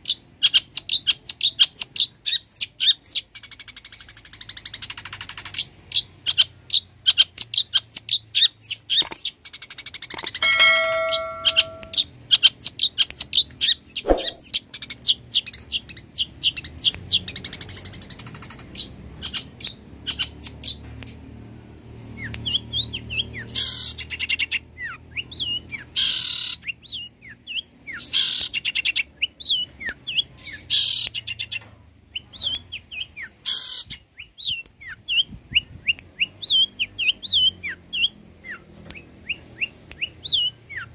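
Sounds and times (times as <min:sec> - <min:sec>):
shrike singing high chirps: 0:10.4 - 0:12.0.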